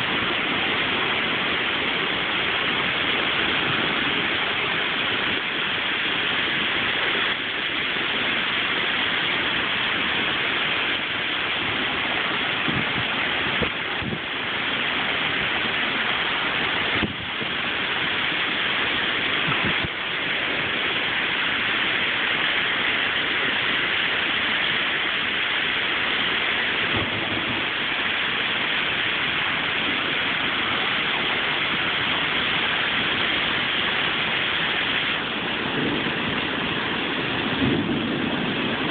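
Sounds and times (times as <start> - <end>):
heavy rain hissing: 0.0 - 38.9
storm wind: 0.0 - 38.9
low bumps: 26.8 - 29.5.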